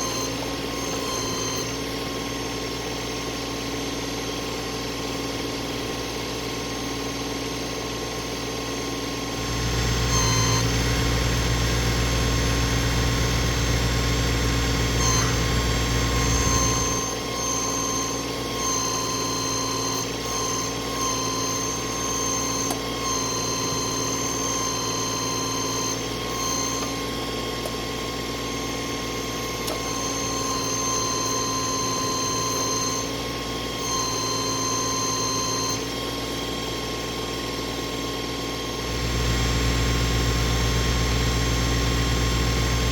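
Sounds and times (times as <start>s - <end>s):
hydraulic whine: 0.0s - 42.9s
tractor engine running: 9.4s - 17.4s.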